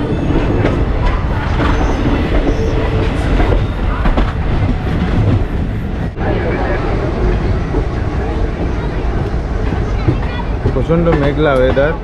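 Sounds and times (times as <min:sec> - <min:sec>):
train rumbling on rails: 0:00.0 - 0:12.0
wheels clacking over track: 0:07.7 - 0:12.0.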